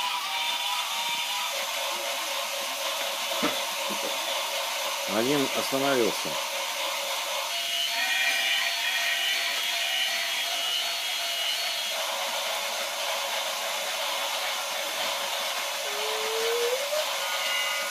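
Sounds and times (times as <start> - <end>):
toy train electric whir: 0.0 - 17.9
short rising tone: 15.8 - 17.7.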